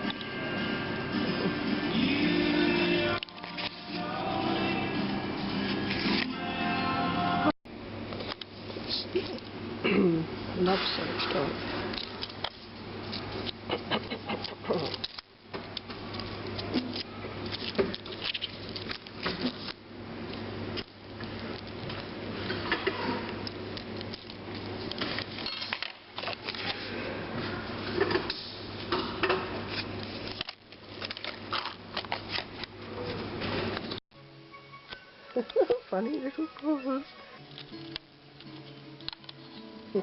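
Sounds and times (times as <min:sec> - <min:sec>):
rustling handling noise: 0:14.5 - 0:27.0, 0:29.7 - 0:34.0.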